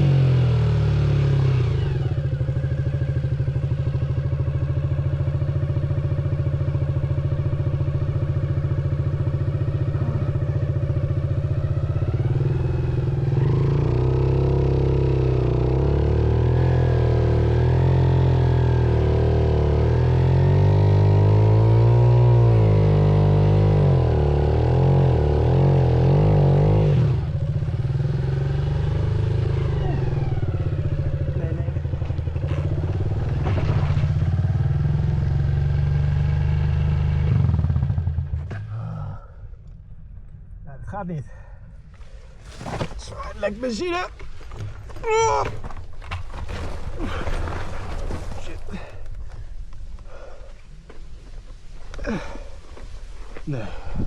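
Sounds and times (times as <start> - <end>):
motorcycle engine revving: 0.0 - 39.3, 52.0 - 52.6.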